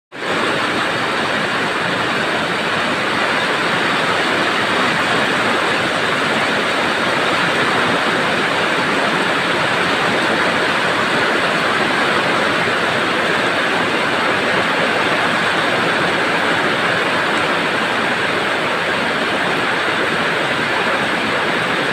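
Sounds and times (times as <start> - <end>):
heavy rain pouring: 0.1 - 21.9.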